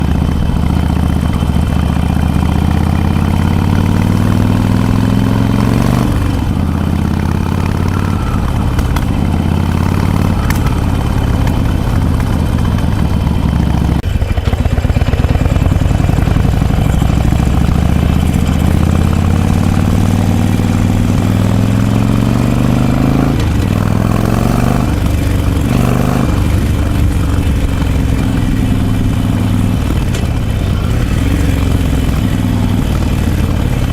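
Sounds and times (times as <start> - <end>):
motorcycle engine revving: 0.0 - 33.9
motorcycle throttle blips: 0.0 - 33.9.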